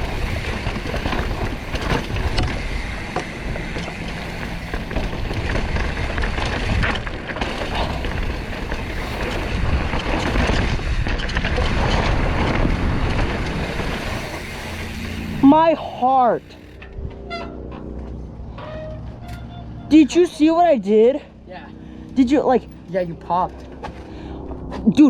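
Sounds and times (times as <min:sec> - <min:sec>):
mountain bike rattling over rocks: 0:00.0 - 0:18.0.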